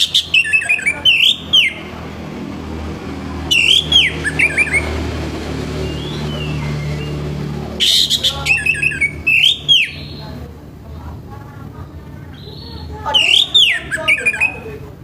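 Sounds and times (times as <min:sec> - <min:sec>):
thrush singing: 0:00.0 - 0:10.9.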